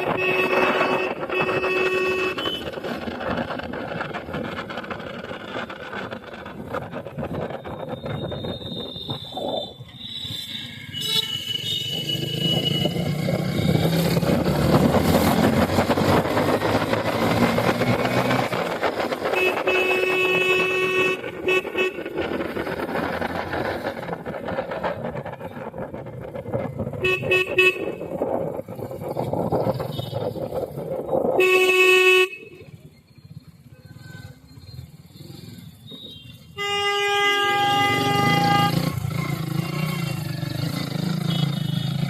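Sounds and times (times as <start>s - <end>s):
vehicle horns honking: 0.0s - 3.0s, 10.0s - 13.1s, 19.2s - 22.2s, 27.0s - 28.2s, 31.4s - 32.8s, 36.0s - 40.3s, 41.2s - 42.0s
road traffic noise: 0.0s - 42.0s.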